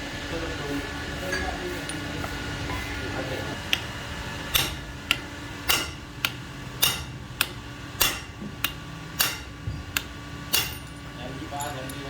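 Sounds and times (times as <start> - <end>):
hammer blows ringing: 4.5 - 12.0.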